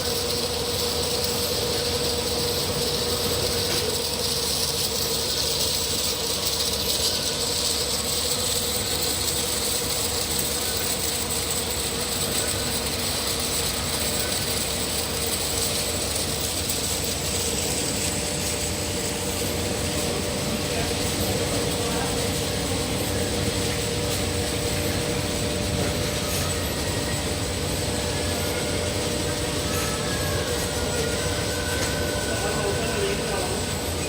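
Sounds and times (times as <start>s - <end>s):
washing machine running: 0.0s - 34.0s.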